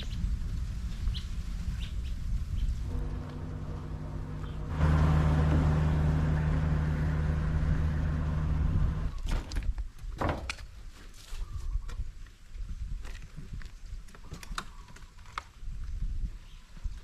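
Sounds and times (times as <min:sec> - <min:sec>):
vehicle engine running: 0:02.8 - 0:09.2.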